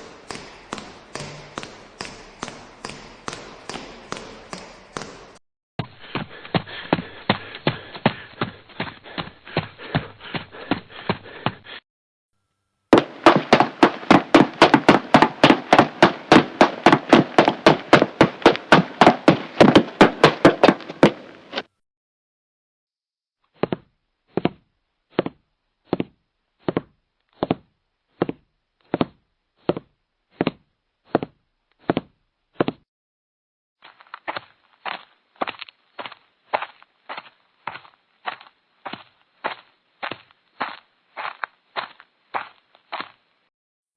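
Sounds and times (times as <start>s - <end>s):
rapid sharp knocks: 13.0s - 21.3s.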